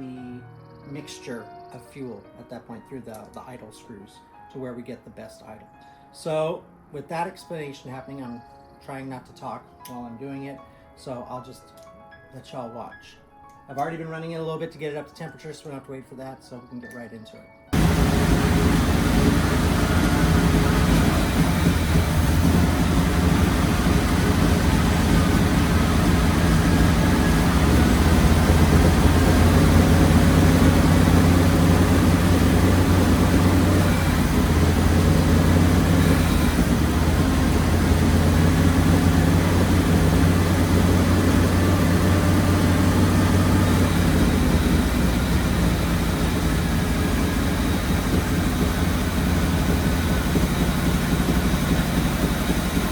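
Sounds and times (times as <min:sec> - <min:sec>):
car engine idling: 0:17.8 - 0:52.9.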